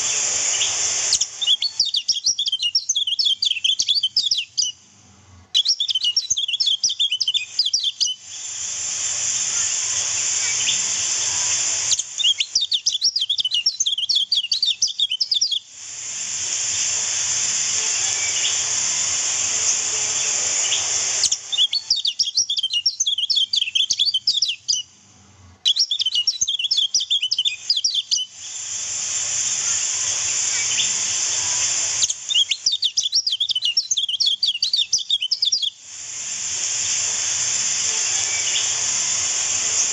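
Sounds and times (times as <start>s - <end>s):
bird twittering chirps: 0.0s - 4.8s, 5.5s - 8.5s, 9.6s - 15.6s, 18.0s - 18.8s, 19.4s - 24.9s, 25.6s - 28.6s, 29.7s - 35.8s, 38.0s - 39.9s.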